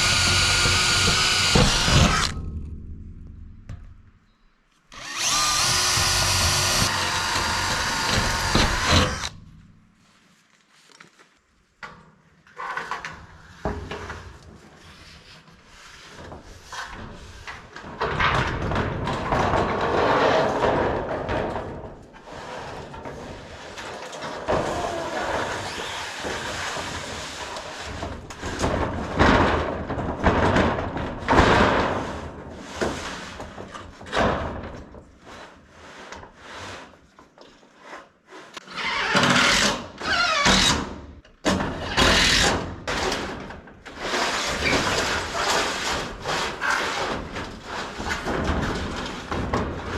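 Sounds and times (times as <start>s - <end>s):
rasping tool noise: 0.0s - 2.4s, 4.9s - 9.4s
boards knocking and thudding: 26.2s - 35.1s, 42.8s - 49.9s.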